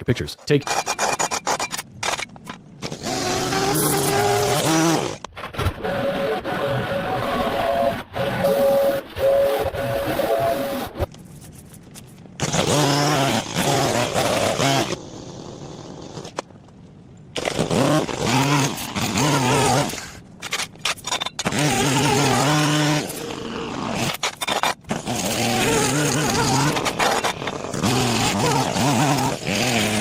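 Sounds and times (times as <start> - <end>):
small gasoline engine running: 21.4 - 24.1, 24.9 - 30.0.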